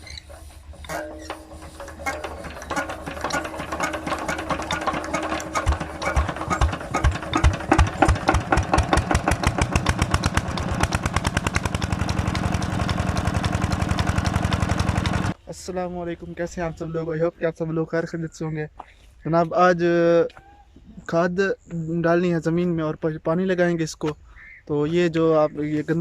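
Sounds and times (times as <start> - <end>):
diesel engine starting and running: 0.0 - 15.4.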